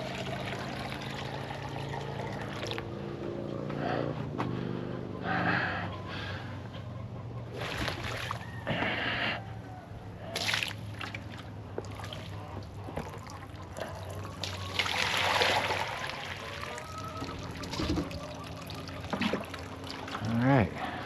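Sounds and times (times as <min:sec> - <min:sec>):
water filling container: 0:00.0 - 0:02.9, 0:14.1 - 0:20.6.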